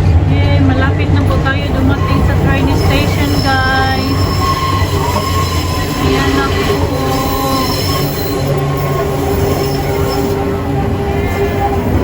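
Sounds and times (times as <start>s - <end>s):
tram rumbling on rails: 0.0s - 12.0s
wheels squealing: 0.0s - 12.0s.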